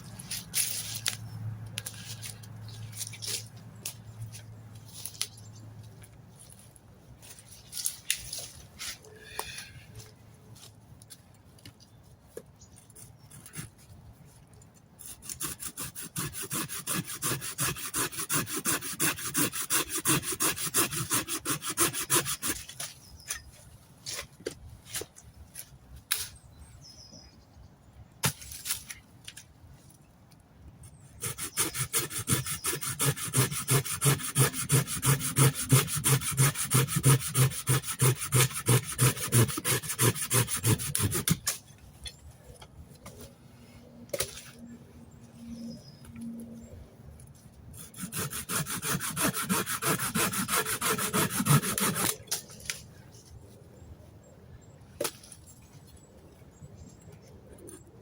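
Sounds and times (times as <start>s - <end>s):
hand saw cutting wood: 15.0s - 22.9s, 31.2s - 41.5s, 47.8s - 52.4s.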